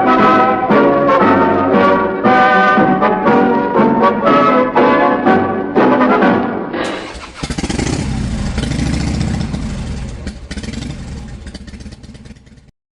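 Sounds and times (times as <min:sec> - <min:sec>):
motorcycle engine running: 0:06.9 - 0:12.7.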